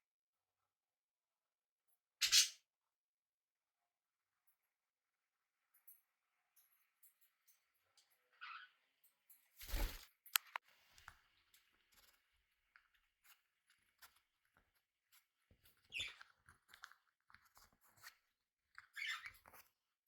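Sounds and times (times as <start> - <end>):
birds pecking and chewing: 10.3 - 19.8.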